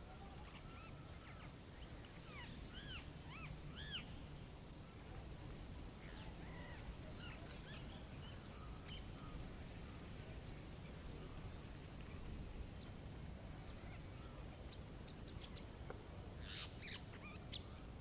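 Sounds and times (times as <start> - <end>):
small birds chirping: 0.2 - 5.1, 16.4 - 18.0.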